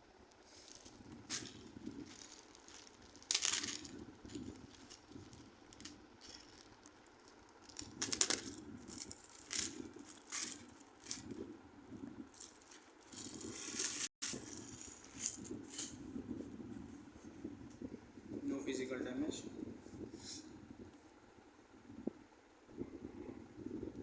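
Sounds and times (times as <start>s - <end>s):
packaging rustling and crinkling: 0.3s - 11.4s, 12.3s - 16.0s.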